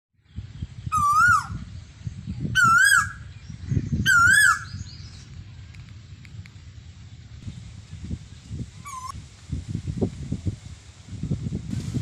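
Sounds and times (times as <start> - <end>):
loud wavering bird call: 0.9 - 1.7, 2.6 - 3.3, 4.0 - 4.9, 8.8 - 9.1.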